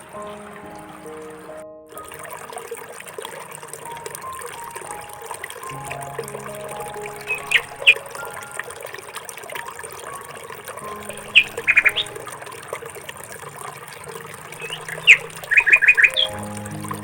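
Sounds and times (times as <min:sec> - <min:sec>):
bird chirping: 0:07.2 - 0:08.4, 0:11.0 - 0:12.2, 0:14.6 - 0:16.6.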